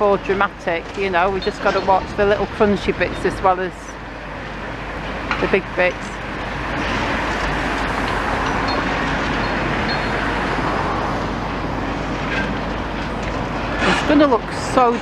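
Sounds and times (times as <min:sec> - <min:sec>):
traffic noise: 0:00.0 - 0:15.0
vehicle engine: 0:00.0 - 0:15.0.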